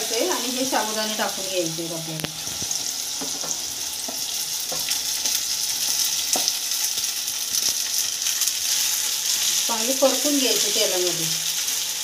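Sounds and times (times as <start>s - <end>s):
potato sizzling in ghee: 0.0s - 12.0s
spatula knocking against a pan: 3.2s - 4.9s.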